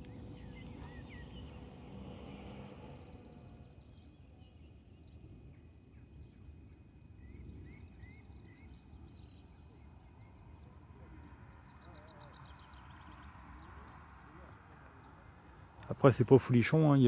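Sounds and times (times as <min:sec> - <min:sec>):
birds chirping: 0:00.0 - 0:05.2
low background rumble: 0:00.0 - 0:06.8.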